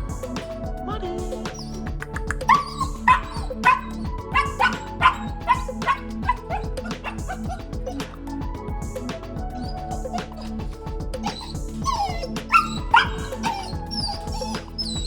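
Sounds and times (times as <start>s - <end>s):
background music: 0.0s - 15.0s
puppy whining and yipping: 2.5s - 8.0s, 11.2s - 15.0s.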